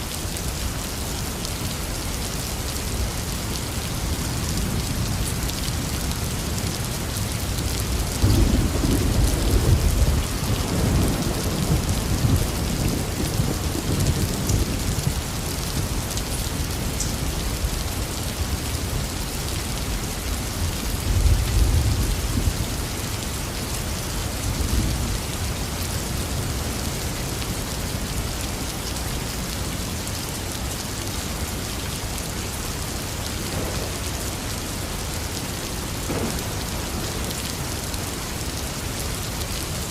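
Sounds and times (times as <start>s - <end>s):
heavy rain falling: 0.0s - 39.9s
thunder rumbling: 8.2s - 15.2s, 33.3s - 35.1s, 35.8s - 38.0s.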